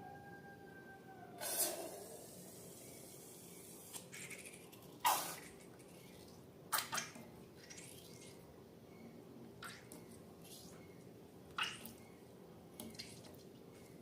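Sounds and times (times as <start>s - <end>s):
low steady background noise: 0.0s - 14.0s.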